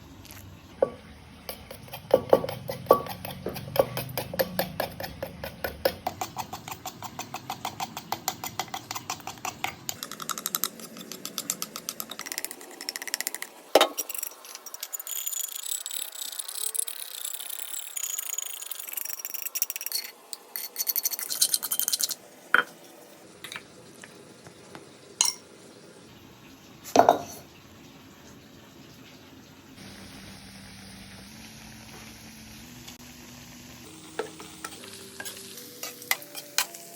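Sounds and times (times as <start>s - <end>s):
utensils and dishes clinking: 0.8s - 15.2s, 19.4s - 22.7s, 25.2s - 25.5s, 26.9s - 27.4s, 33.9s - 36.9s.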